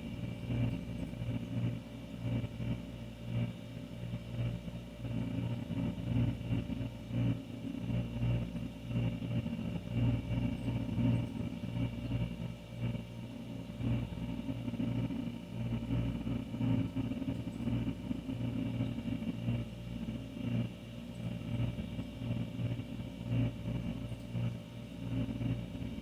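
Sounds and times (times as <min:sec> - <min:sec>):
faint higher hum: 0:09.5 - 0:26.0.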